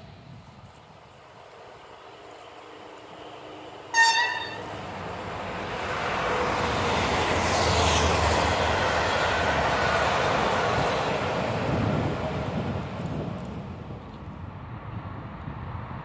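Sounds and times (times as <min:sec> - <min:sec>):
train wheels rumbling on rails: 0:00.0 - 0:15.6
train horn blast: 0:03.9 - 0:04.7.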